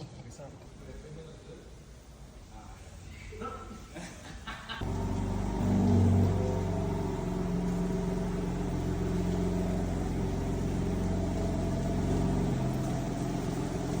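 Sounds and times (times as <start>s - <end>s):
car engine running: 4.8s - 14.0s.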